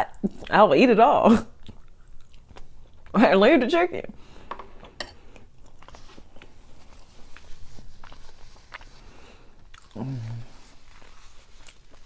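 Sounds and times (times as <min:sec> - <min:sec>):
wet chewing clicks and smacks: 0:01.6 - 0:03.1.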